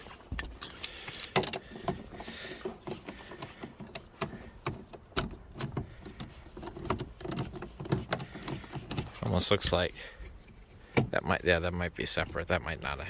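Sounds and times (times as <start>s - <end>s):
clicks and knocks on car door trim: 1.3s - 9.2s.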